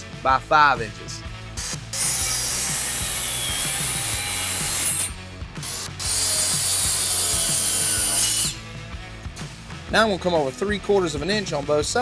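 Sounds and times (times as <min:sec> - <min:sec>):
saw cutting wood: 0:01.6 - 0:08.8.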